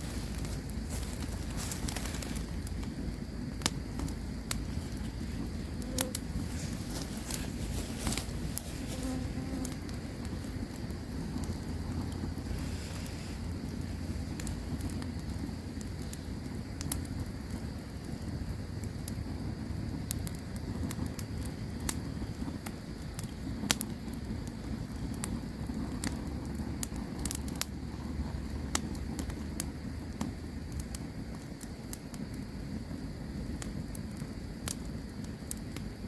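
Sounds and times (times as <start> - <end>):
faint high-pitched hum: 0.0 - 17.1
low rumble: 0.0 - 17.7
campfire crackling and popping: 0.0 - 36.0.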